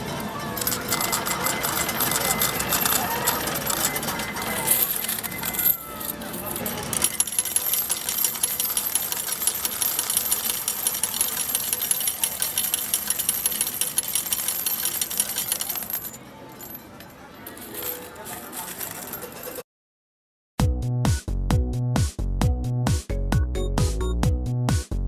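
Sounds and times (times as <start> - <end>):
arcade machine electronic music: 0.0 - 15.8
metal medals clattering: 0.1 - 19.6.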